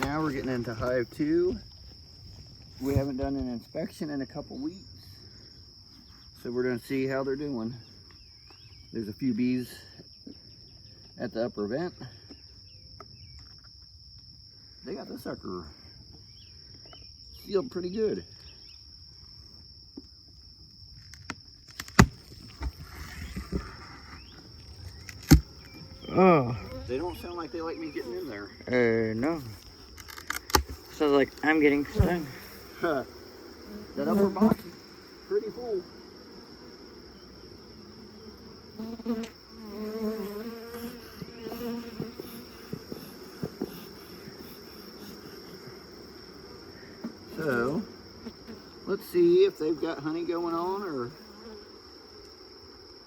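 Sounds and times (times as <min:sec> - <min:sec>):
wooden hive cracking open: 0:00.0 - 0:01.0, 0:20.9 - 0:26.1, 0:29.4 - 0:32.5
honeybees buzzing: 0:00.0 - 0:03.3, 0:21.8 - 0:53.0
bee passing close: 0:22.6 - 0:29.5, 0:30.8 - 0:53.0
sharp clicks: 0:25.0 - 0:25.8, 0:29.9 - 0:30.8.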